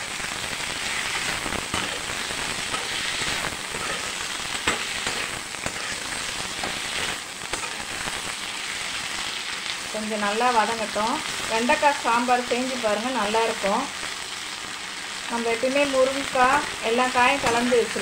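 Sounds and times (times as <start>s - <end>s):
vegetables sizzling in hot oil: 0.0s - 18.0s
spoon stirring in a pan: 1.0s - 7.9s.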